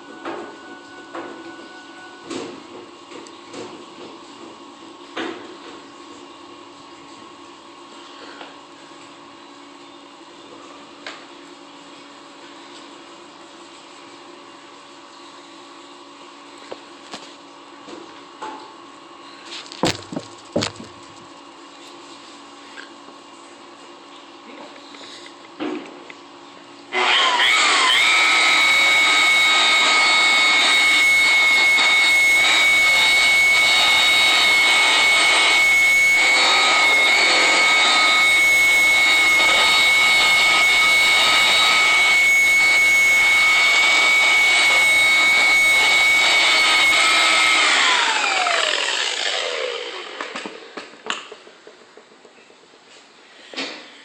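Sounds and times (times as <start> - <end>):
electric power tool motor whining: 19.7 - 21.2, 26.9 - 51.0.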